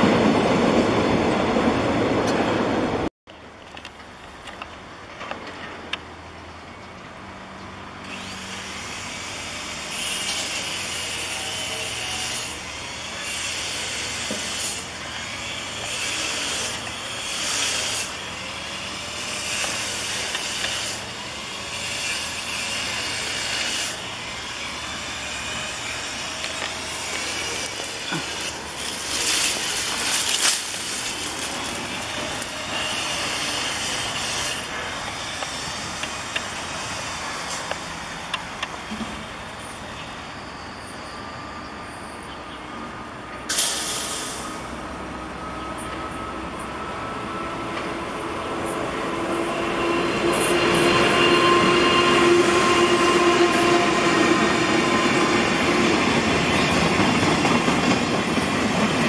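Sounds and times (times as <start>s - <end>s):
loud hissing bursts: 8.2s - 37.7s, 43.5s - 44.7s
locomotive rumbling: 9.9s - 59.0s.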